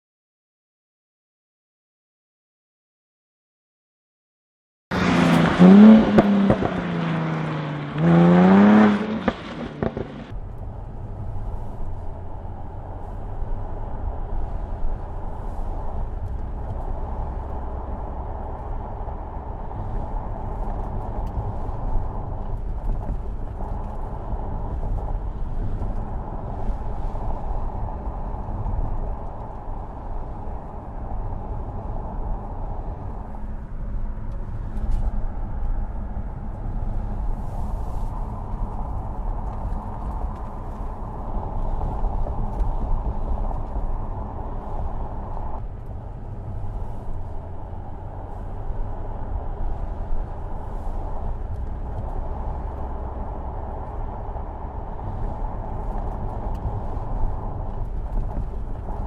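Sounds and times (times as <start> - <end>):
car engine revving hard: 4.9 - 10.3
low rumble: 4.9 - 59.0.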